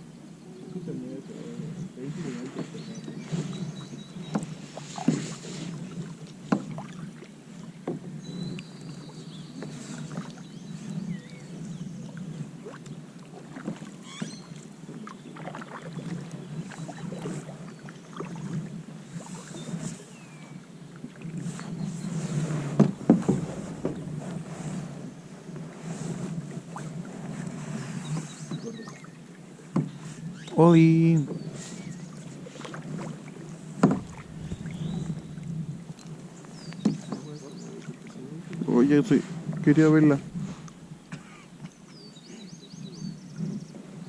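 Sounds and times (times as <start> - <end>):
low wash of water: 0.0 - 44.0
paddles splashing in water: 0.7 - 44.0
kayak paddle strokes dripping: 25.6 - 38.8
sharp knocks: 33.8 - 34.8.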